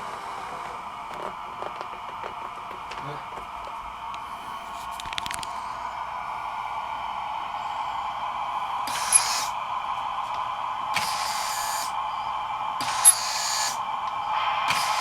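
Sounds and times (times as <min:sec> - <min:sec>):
model railway turntable whine: 0:00.0 - 0:15.0
hissing bursts: 0:08.8 - 0:09.6, 0:10.9 - 0:12.1, 0:12.8 - 0:15.0.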